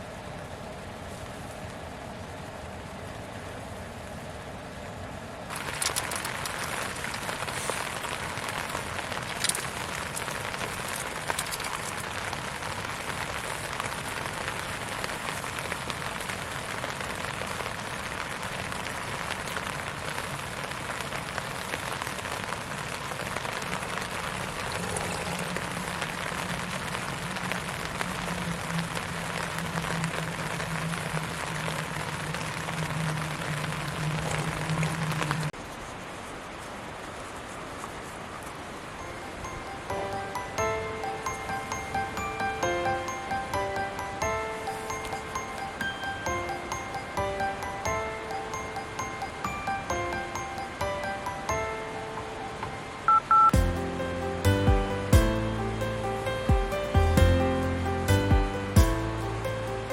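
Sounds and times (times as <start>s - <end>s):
pops and crackles: 5.5s - 35.5s.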